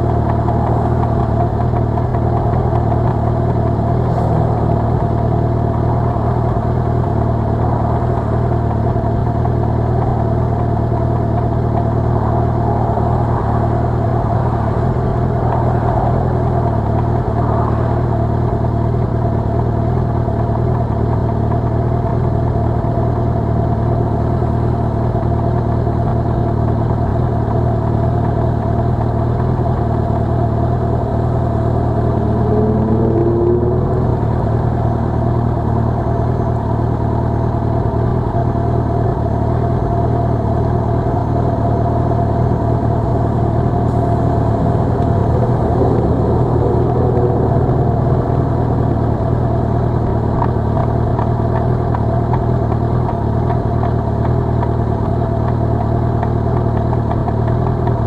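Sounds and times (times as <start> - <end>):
traffic passing: 0.0 - 20.7, 30.4 - 36.9, 40.2 - 57.8
motorcycle engine idling: 0.0 - 58.0.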